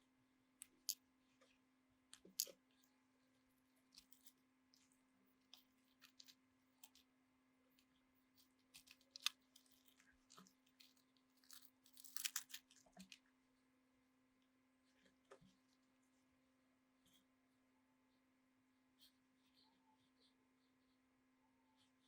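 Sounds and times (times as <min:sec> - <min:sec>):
small clicks and crackles: 0:00.6 - 0:03.0, 0:03.6 - 0:07.1, 0:07.7 - 0:13.3.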